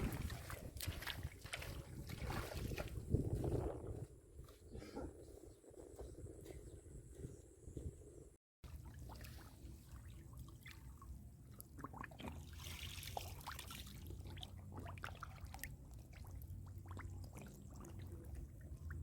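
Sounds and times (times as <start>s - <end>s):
water splashing: 0.0s - 3.0s, 8.7s - 19.0s
muddy water sloshing: 0.0s - 4.1s, 8.6s - 19.0s.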